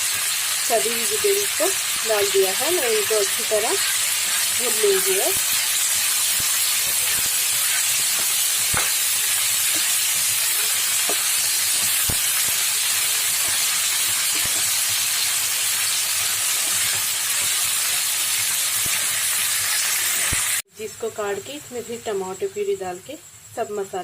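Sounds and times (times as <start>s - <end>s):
vegetables sizzling in hot oil: 0.0s - 24.0s
sharp crackles and clicks: 1.6s - 20.6s.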